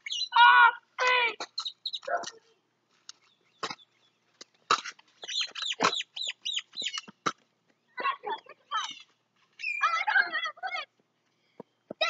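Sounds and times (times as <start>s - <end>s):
birds chirping: 0.0s - 12.0s
bird chattering call: 5.2s - 7.1s.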